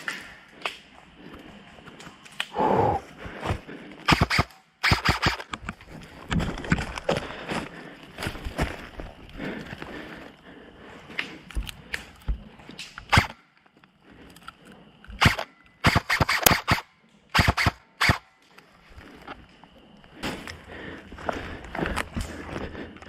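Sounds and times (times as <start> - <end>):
airsoft guns firing: 4.1 - 5.5, 15.2 - 18.3.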